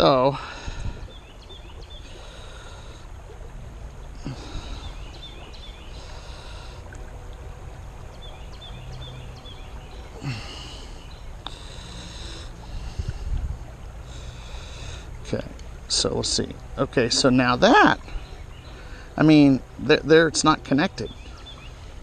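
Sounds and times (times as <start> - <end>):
low background rumble: 0.0 - 22.0
bird chirping: 1.0 - 2.8, 4.3 - 6.8, 8.1 - 11.6, 18.0 - 19.2, 21.0 - 21.9.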